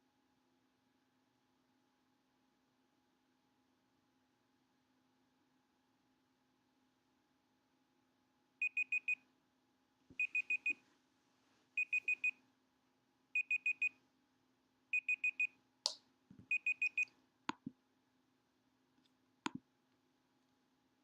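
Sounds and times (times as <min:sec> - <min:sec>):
timer alarm beeping: 0:08.6 - 0:09.2, 0:10.2 - 0:10.8, 0:11.8 - 0:12.3, 0:13.4 - 0:13.9, 0:15.0 - 0:15.5, 0:16.5 - 0:17.1.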